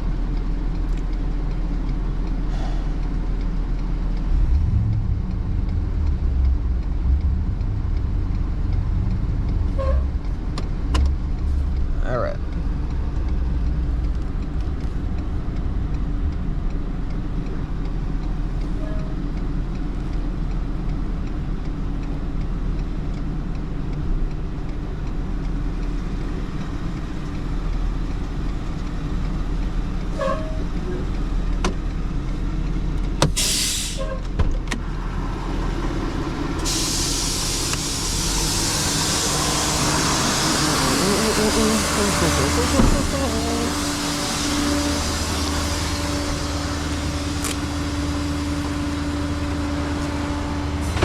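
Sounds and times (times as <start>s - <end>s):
truck engine running: 0.0s - 33.2s, 34.8s - 51.0s
air hiss: 33.4s - 34.1s, 36.6s - 47.4s.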